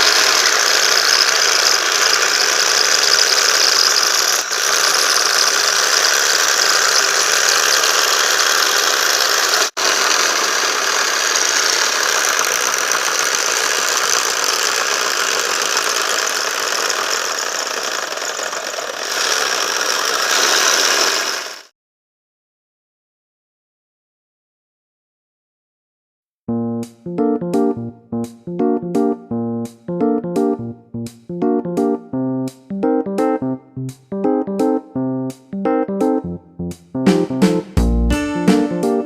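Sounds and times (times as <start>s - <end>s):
jigsaw buzzing rattle: 0.0s - 21.7s.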